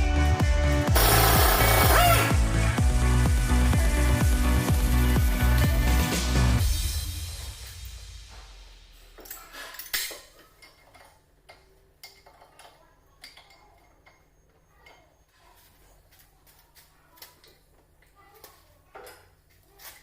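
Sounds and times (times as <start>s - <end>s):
metallic clicks and clinks: 9.1s - 15.3s.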